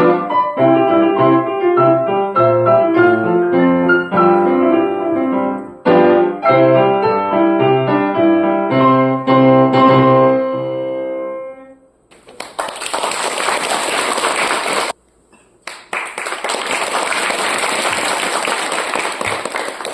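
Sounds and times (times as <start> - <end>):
piano played four-hands: 0.0 - 11.8
audience applause: 12.2 - 15.0, 15.6 - 19.9.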